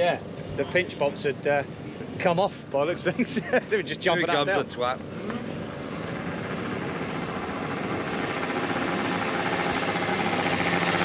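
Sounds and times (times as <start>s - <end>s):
motorcycle engine running: 5.5s - 11.0s.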